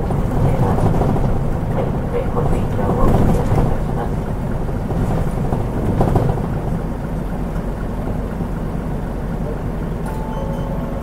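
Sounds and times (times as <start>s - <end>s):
bus diesel engine rumble: 0.0s - 11.0s.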